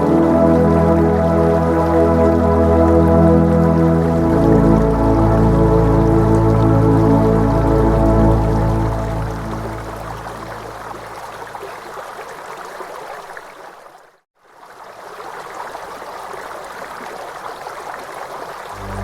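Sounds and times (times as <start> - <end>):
soft new-age music: 0.0 - 11.1, 18.8 - 19.0
stream water rushing: 0.0 - 19.0.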